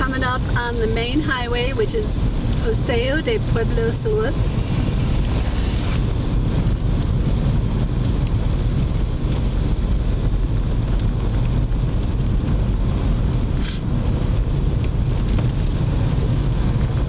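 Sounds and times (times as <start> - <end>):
car engine and tyres rumble: 0.0 - 17.0.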